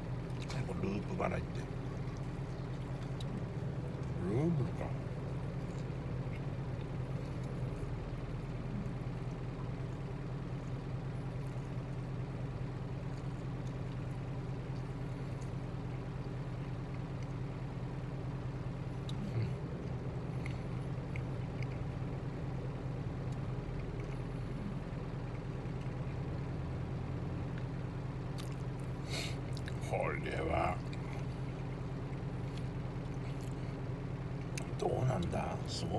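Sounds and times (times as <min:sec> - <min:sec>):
truck engine idling: 0:19.6 - 0:35.9.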